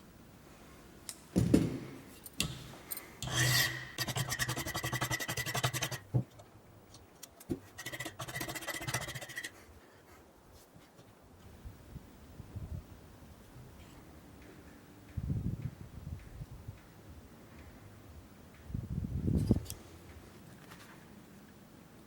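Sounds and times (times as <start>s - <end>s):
tool rasping on material: 3.2s - 6.2s, 7.6s - 9.6s.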